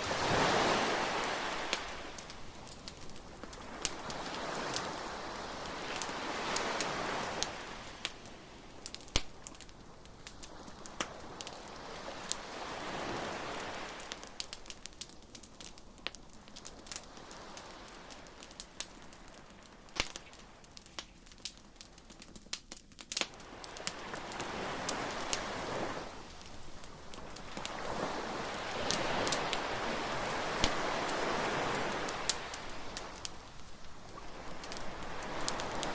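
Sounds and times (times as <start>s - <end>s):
waves washing in: 0.0s - 9.4s, 10.2s - 14.6s, 23.3s - 35.9s
bonfire crackling: 0.0s - 35.9s.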